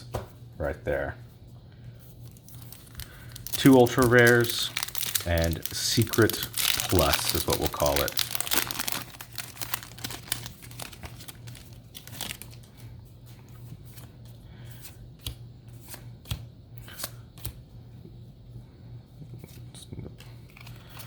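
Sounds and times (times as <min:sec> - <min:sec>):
steady low hum: 0:00.0 - 0:21.0
cards clicking and tapping: 0:14.8 - 0:17.6.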